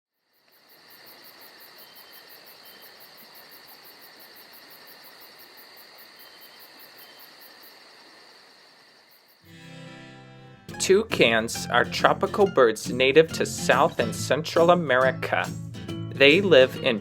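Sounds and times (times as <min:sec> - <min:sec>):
insects trilling: 0:00.2 - 0:09.5
pulsing insect chirp: 0:00.2 - 0:09.5.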